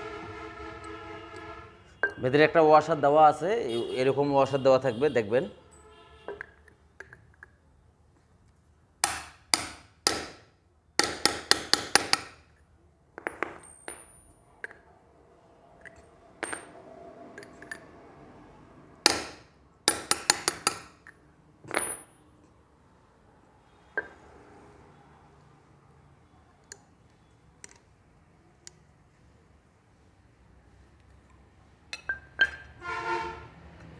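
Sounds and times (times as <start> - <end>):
metal tools clinking: 15.8 - 16.8, 31.9 - 32.8.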